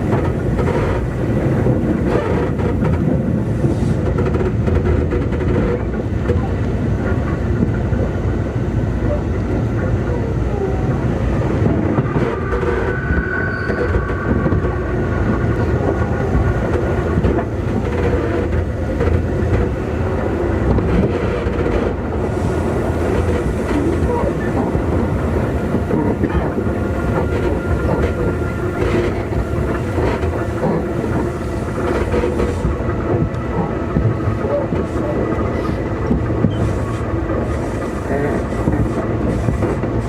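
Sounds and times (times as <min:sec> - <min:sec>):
rail joint clacks: 0:00.0 - 0:40.0
train wheel and rail rumble: 0:00.0 - 0:40.0.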